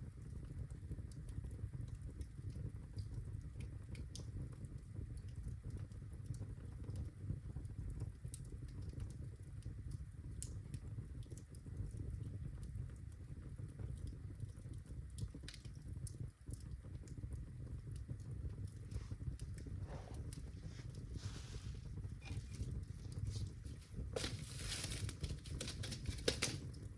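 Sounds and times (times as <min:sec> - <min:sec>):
fire crackling and popping: 0:00.0 - 0:26.9
low rumble of flames: 0:00.0 - 0:26.9.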